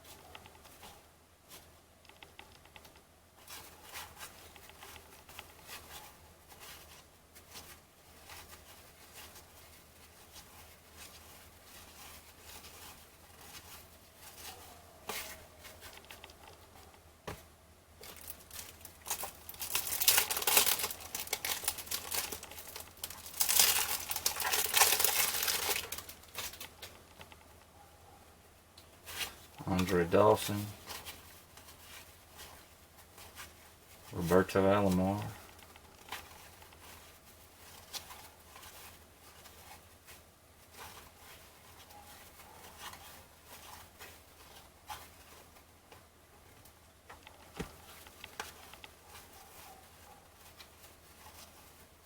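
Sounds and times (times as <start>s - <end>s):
cellophane wrapper crinkling and tearing: 18.0s - 27.4s.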